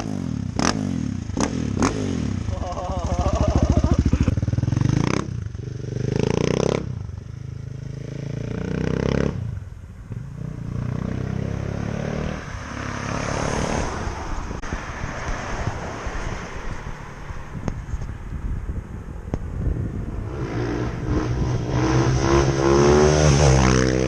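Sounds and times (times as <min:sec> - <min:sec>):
motorcycle engine revving: 0:00.0 - 0:13.9, 0:19.5 - 0:24.0.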